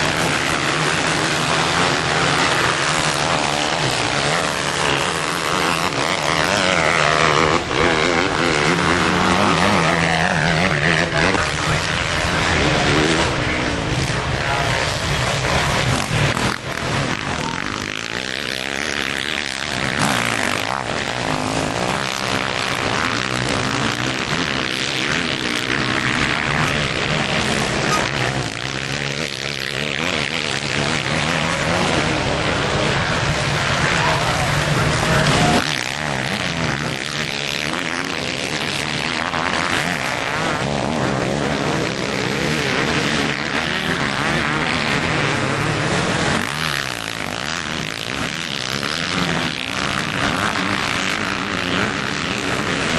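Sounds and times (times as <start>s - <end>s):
motocross bike engines revving: 0.0s - 52.9s.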